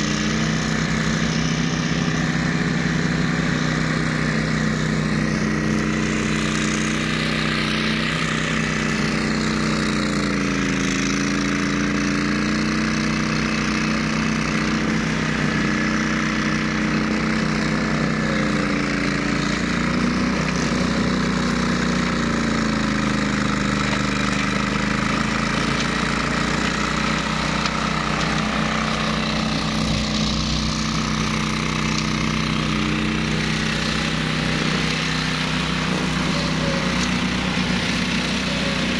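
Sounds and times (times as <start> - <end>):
ride-on mower engine running: 0.0 - 38.9.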